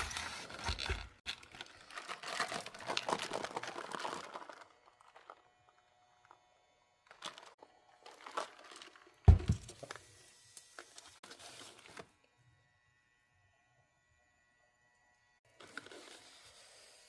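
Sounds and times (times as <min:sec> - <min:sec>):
food packaging crinkling: 0:00.0 - 0:06.4, 0:07.0 - 0:10.0
solid thump: 0:09.3 - 0:09.7.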